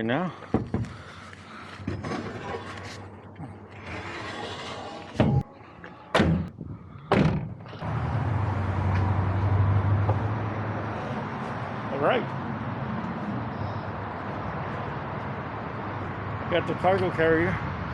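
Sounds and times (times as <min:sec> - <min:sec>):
van doors slamming: 0:06.1 - 0:06.5, 0:07.1 - 0:07.7.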